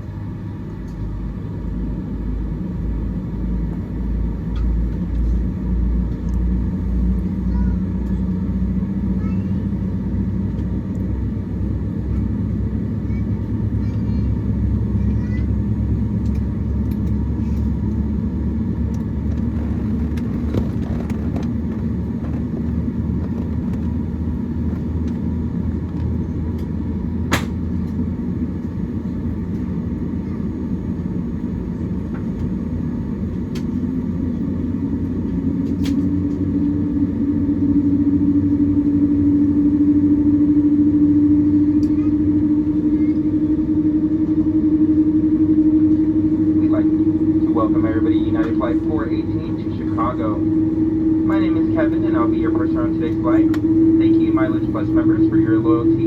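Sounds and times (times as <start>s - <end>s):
aircraft cabin rumble and hum: 0.0s - 56.0s
rising humming tone: 30.7s - 56.0s.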